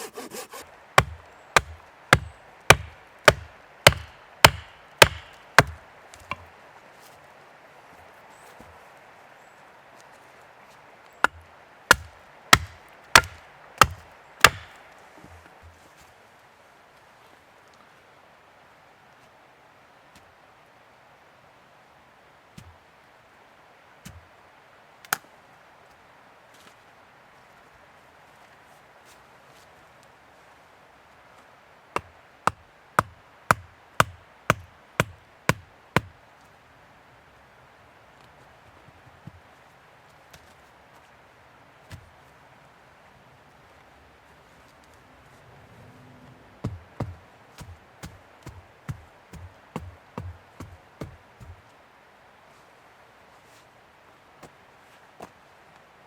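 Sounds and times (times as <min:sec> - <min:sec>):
wood being chopped: 0:00.3 - 0:06.5, 0:11.2 - 0:14.8, 0:32.0 - 0:36.1, 0:46.7 - 0:51.6.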